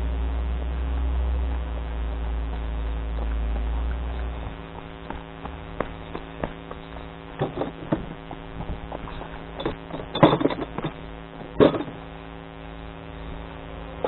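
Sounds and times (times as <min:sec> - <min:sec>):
engine running: 0:00.0 - 0:14.0
clattering thumps: 0:05.1 - 0:12.0.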